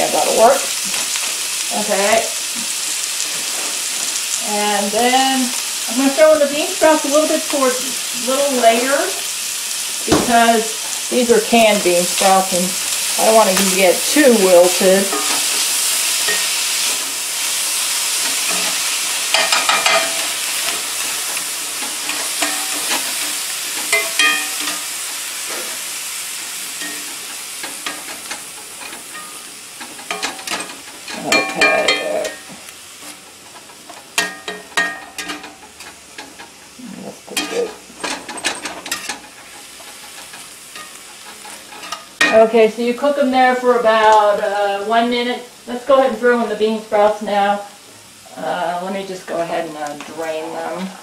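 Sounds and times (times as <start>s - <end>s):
meat sizzling in a skillet: 0.0s - 51.0s
spatula scraping and knocking pan: 9.9s - 42.6s.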